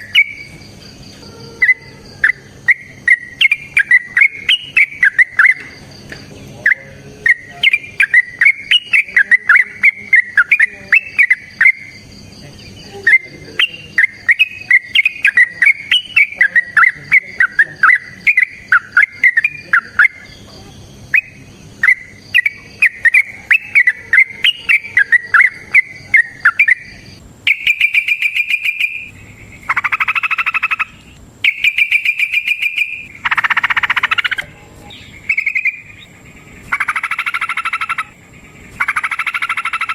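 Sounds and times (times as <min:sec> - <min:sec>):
bulbul singing chattering phrases: 0:00.0 - 0:39.9
bird rattling trills: 0:27.5 - 0:39.9.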